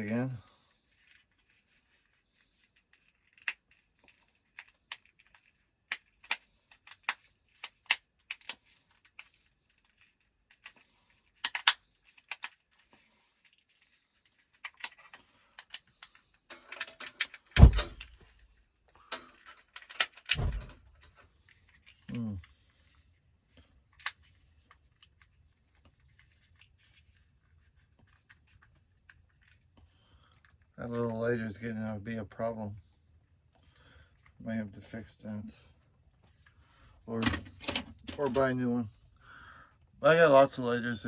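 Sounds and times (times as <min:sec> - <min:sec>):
metallic handling sounds: 0:02.7 - 0:18.3, 0:19.0 - 0:22.6, 0:36.2 - 0:39.1
loud thumps: 0:17.6 - 0:18.1, 0:20.4 - 0:20.7.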